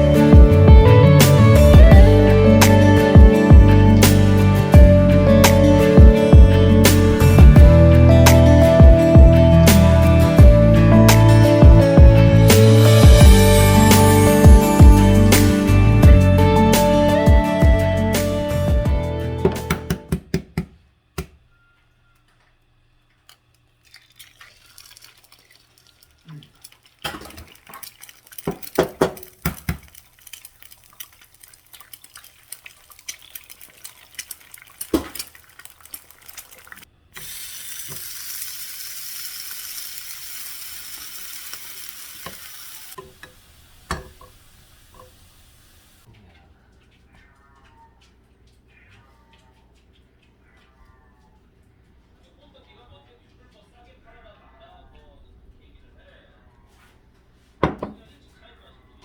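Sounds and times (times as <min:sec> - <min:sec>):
utensils and dishes clicking: 0:23.1 - 0:45.1
steady hiss: 0:37.2 - 0:46.1.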